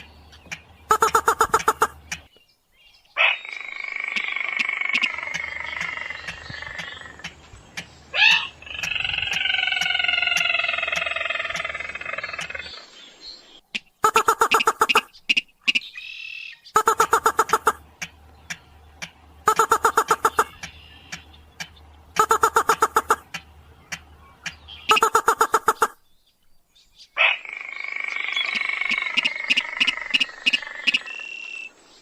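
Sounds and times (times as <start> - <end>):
long nasal rail calls: 0.9 - 2.2, 14.0 - 15.9, 16.8 - 26.0.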